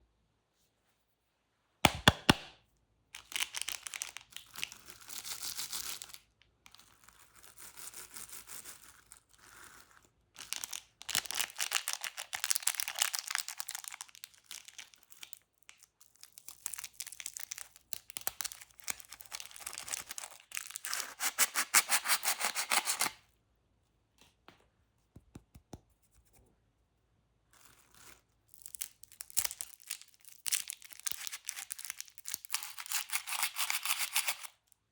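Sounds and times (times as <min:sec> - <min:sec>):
plastic wrappers crinkling: 0:03.2 - 0:04.8, 0:10.4 - 0:15.8, 0:28.7 - 0:34.5.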